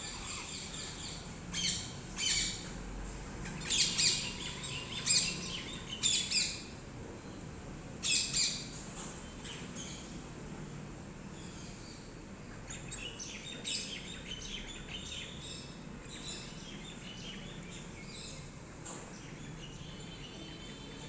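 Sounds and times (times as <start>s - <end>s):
parrots chirping: 0.0s - 2.7s, 3.5s - 6.7s
low background noise: 0.0s - 21.0s.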